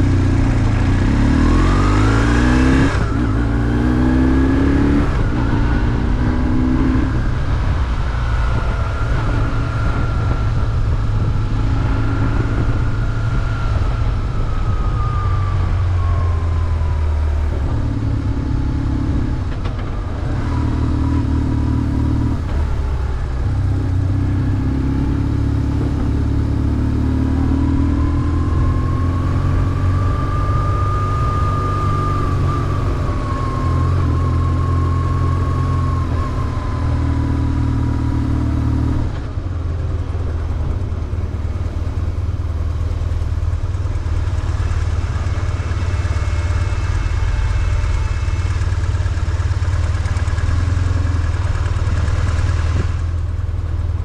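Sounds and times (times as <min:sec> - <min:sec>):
motorcycle engine running: 0:00.0 - 0:54.0
road and wind noise: 0:00.0 - 0:54.0.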